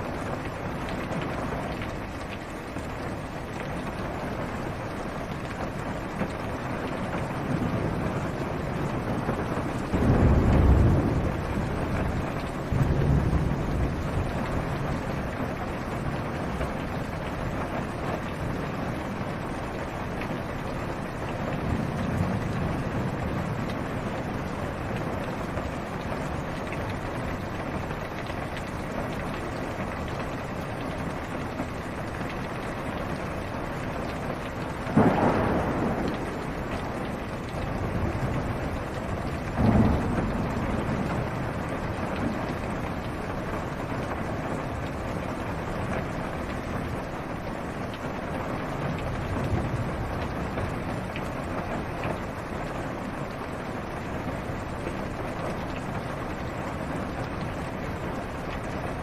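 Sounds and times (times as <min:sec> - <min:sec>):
rain on car roof: 0:00.0 - 0:59.0
thunder cracks and rumble: 0:06.8 - 0:17.8, 0:19.6 - 0:27.1, 0:34.7 - 0:45.1.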